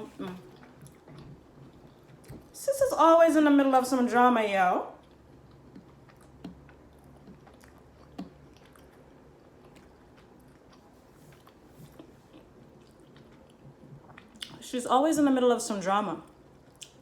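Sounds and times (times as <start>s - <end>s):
person chewing: 0.0s - 2.5s, 5.0s - 14.6s.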